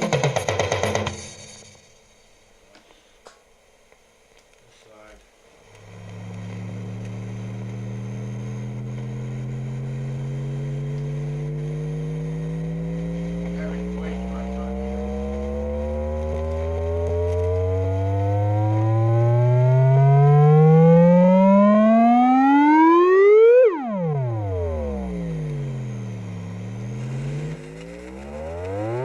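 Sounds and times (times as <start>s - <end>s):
buzzy electronic tone sweeping: 5.8s - 29.0s.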